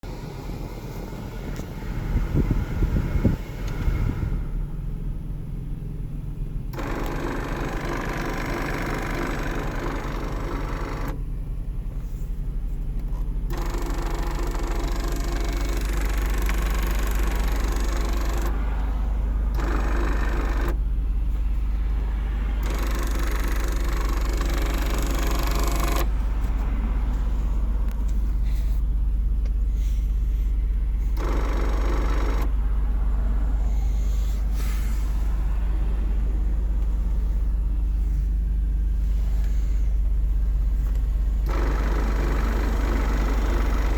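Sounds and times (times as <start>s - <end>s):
car interior low hum: 0.0s - 43.9s
sunroof motor whirring: 0.1s - 4.8s, 6.5s - 11.3s, 12.0s - 43.9s.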